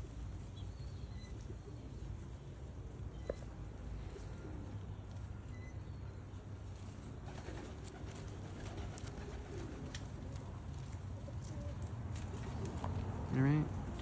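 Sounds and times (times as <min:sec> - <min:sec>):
pigeons cooing: 0:07.1 - 0:13.1.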